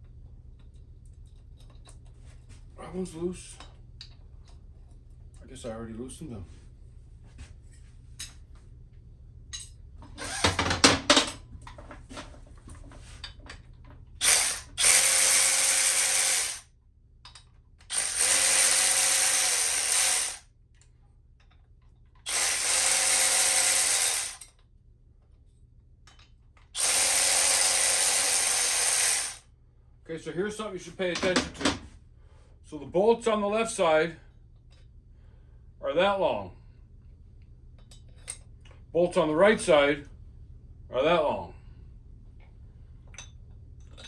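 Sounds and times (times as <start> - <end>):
power ratchet spinning: 10.2 - 10.6, 14.2 - 16.7, 17.9 - 20.4, 22.3 - 24.5, 26.8 - 29.4.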